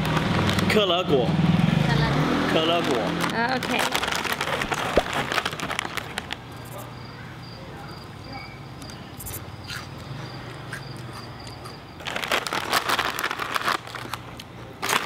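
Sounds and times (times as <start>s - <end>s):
crackers being chewed: 2.7s - 6.9s, 9.2s - 15.0s
insect chirping: 6.4s - 12.3s.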